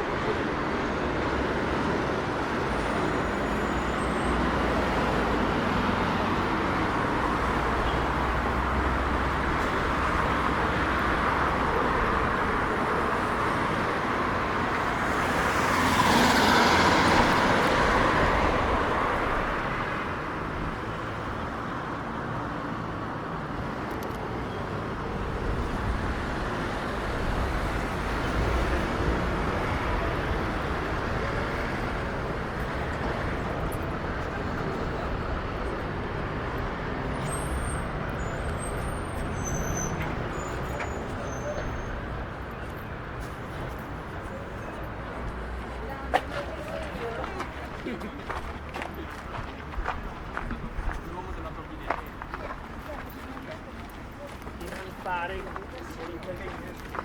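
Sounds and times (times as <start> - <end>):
city street traffic rumble: 0.0 - 57.0
vehicle passing close by: 4.6 - 20.2.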